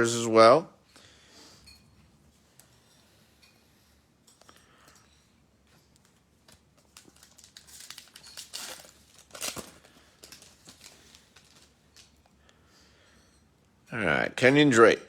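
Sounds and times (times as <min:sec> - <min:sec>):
wrapper crinkling and tearing: 0:06.4 - 0:12.2.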